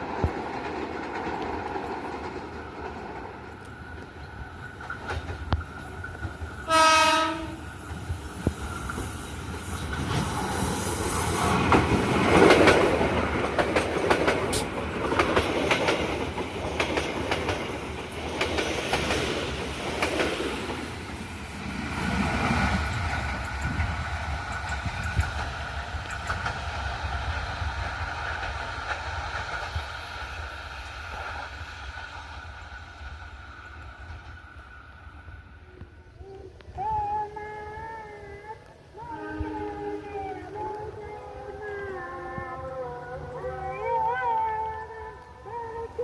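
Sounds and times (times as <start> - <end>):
train wheels clattering on rails: 0.0 - 36.0
train horn blast: 6.7 - 7.7.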